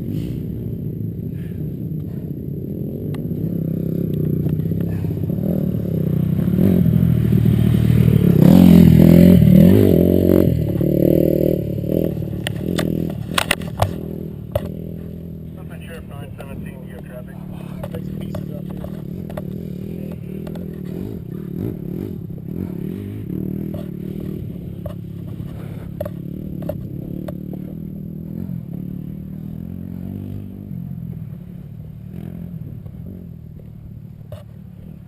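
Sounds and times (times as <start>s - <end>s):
motocross bike engines: 0.0s - 35.0s
sharp clicks and scrapes: 12.3s - 14.8s.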